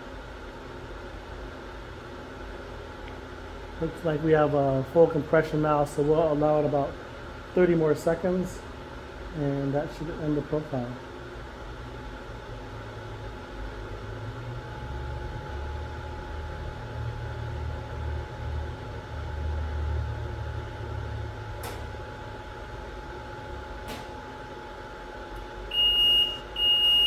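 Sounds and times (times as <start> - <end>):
low machine hum: 0.0 - 27.0
loud high beeps: 25.7 - 27.0.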